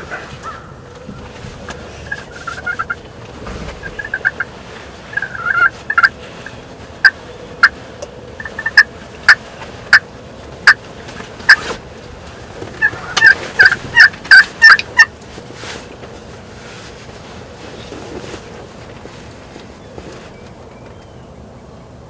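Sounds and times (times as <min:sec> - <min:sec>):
turkey gobbling: 0:00.0 - 0:07.8, 0:08.4 - 0:10.0, 0:11.4 - 0:11.8, 0:12.7 - 0:15.1.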